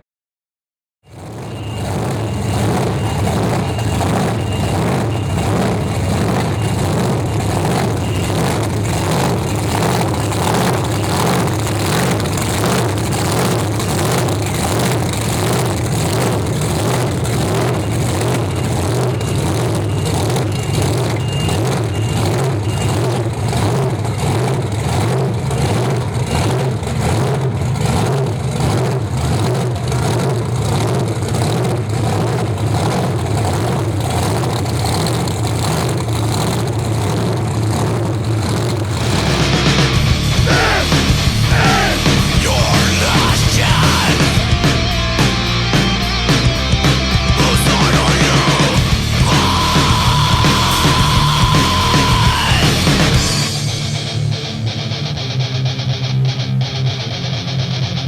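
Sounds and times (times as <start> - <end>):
truck engine running: 1.1 - 58.0
faint high beeping: 1.4 - 11.4.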